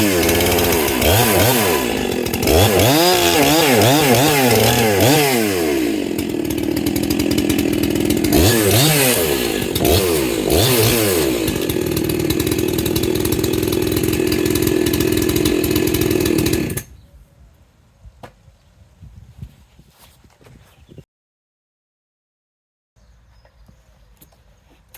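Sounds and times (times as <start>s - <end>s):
chainsaw engine revving: 0.0s - 16.9s.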